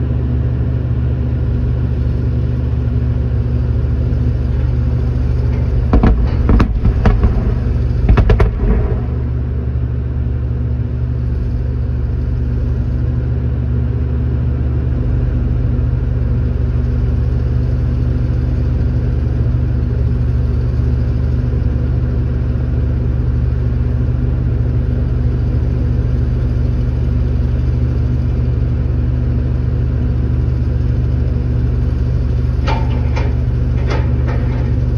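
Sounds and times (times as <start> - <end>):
vehicle engine drone: 0.0 - 34.9
loud blast bangs: 4.7 - 10.0.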